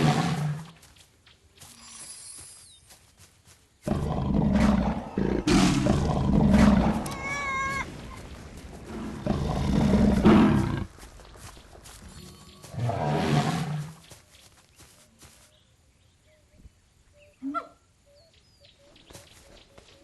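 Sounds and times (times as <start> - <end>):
tiger roaring and growling: 3.9 - 7.2, 8.9 - 10.9.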